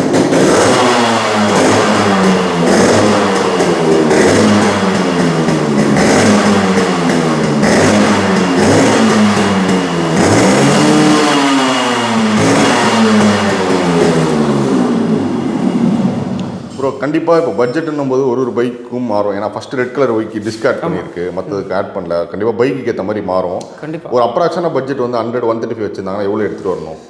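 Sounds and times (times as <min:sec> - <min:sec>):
motorcycle engine revving: 0:00.0 - 0:16.8.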